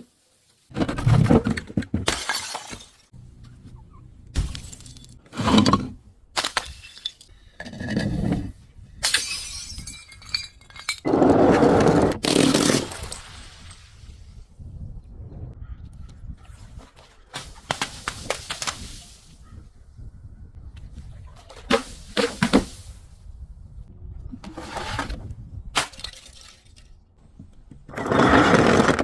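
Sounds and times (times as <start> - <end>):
glass bottles shattering: 2.1 - 3.1, 4.4 - 7.3, 9.0 - 11.1, 12.2 - 14.1, 25.8 - 26.9.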